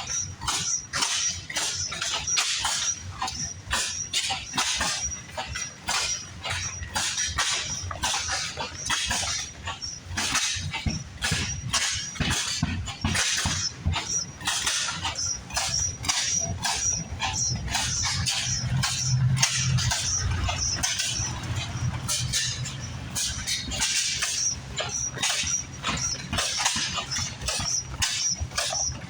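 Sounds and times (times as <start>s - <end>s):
engine exhaust beats: 0.0s - 29.0s.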